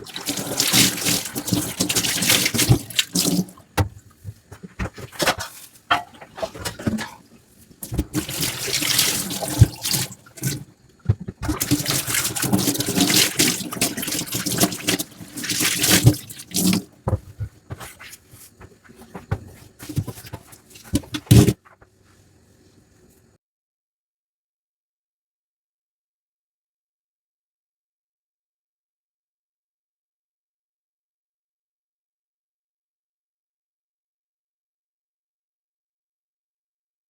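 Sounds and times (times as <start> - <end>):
tap water running into sink: 0.0 - 7.2, 7.8 - 18.2, 19.0 - 21.6
dishes knocking: 3.8 - 7.2.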